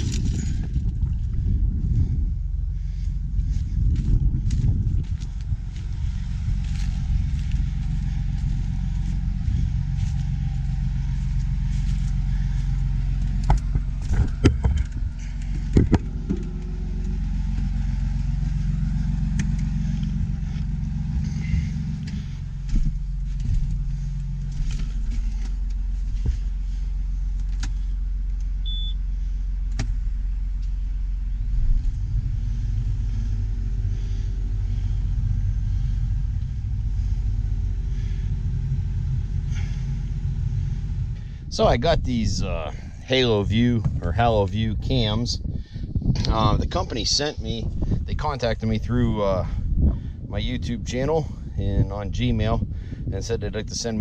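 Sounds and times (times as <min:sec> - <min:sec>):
heavy farm vehicle engine running: 0:00.0 - 0:54.0
sharp knocks and rattles: 0:13.0 - 0:17.8.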